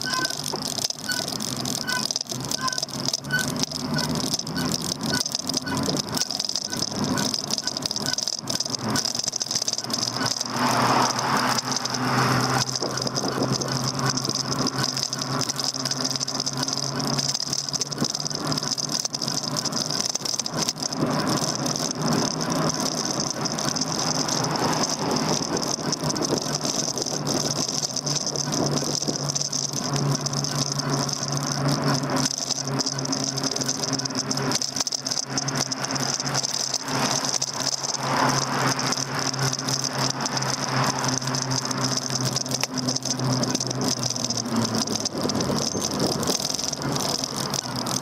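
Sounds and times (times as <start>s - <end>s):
bike rattling over pavement: 0.0s - 48.0s
steady high whine: 0.0s - 48.0s.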